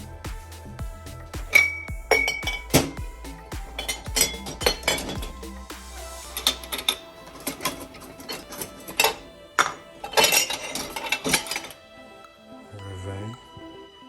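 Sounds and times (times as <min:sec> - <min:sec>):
background music: 0:00.0 - 0:14.0
cups and dishes clinking: 0:01.5 - 0:03.0, 0:03.8 - 0:05.3, 0:06.4 - 0:11.8.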